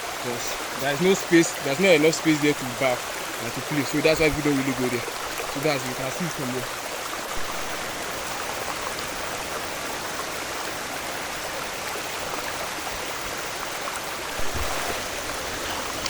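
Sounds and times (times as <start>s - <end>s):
waterfall rushing: 0.0s - 16.0s
low thump: 14.4s - 15.0s.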